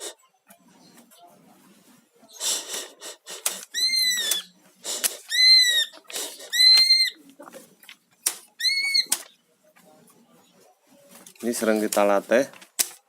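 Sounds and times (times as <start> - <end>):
bird harsh rasping bursts: 2.3 - 7.2, 8.2 - 9.4.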